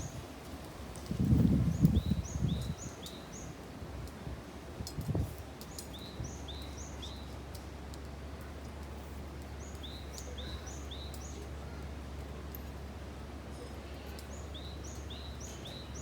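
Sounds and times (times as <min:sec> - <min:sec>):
songbird chirping: 0:14.1 - 0:16.0.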